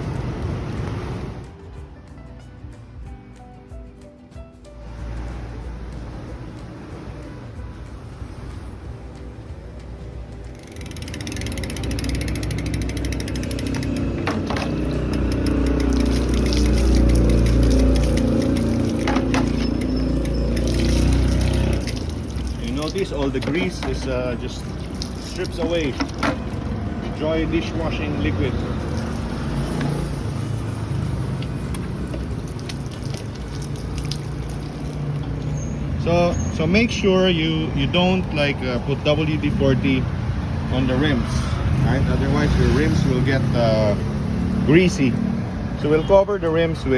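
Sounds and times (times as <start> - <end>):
traffic rumble: 0.0 - 3.3, 4.7 - 46.9
bicycle freewheel ratcheting: 10.5 - 24.0, 24.7 - 26.6.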